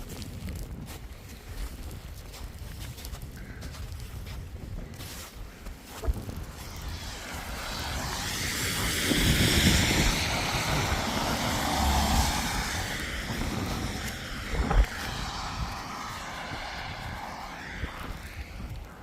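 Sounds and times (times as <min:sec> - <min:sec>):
wind buffeting microphone: 0:00.0 - 0:19.0
vehicle passing by: 0:06.5 - 0:19.0.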